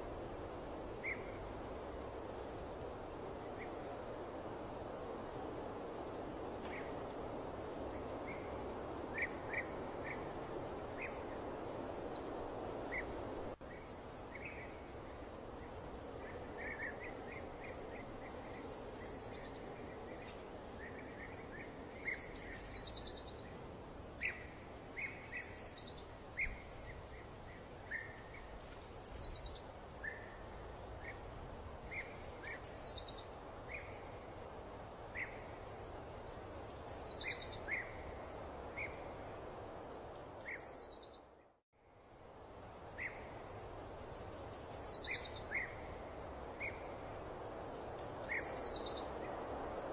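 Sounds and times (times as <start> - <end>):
steady background hiss: 0.0 - 49.9.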